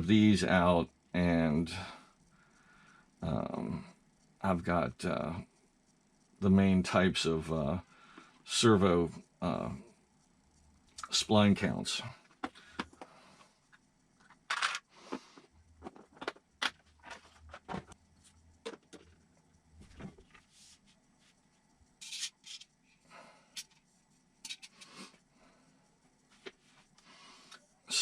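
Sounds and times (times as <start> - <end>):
small parts clicking and tapping: 12.2 - 19.6, 22.0 - 25.2.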